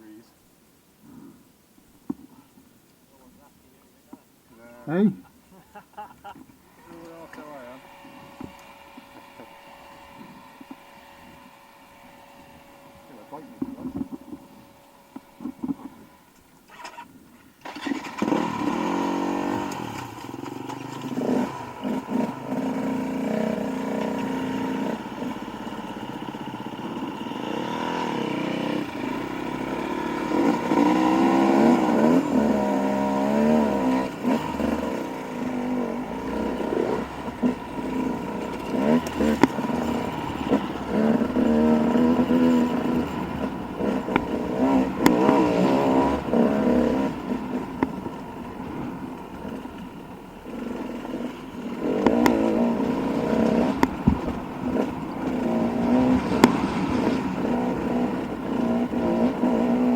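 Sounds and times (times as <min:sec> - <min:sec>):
dirt bike engine revving: 0:06.7 - 0:59.9.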